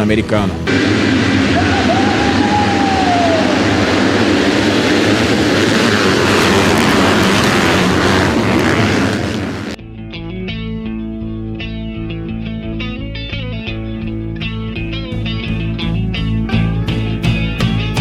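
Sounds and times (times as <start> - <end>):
motocross bike engines roaring: 0.0 - 9.8.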